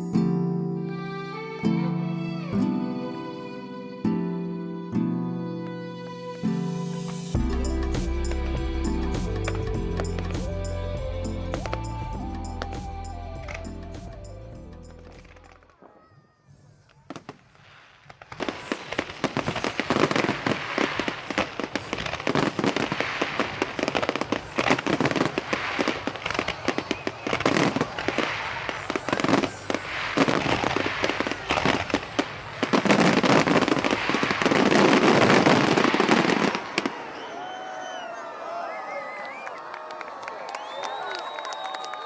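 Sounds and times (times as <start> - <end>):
fireworks bangs and crackles: 15.1 - 37.2.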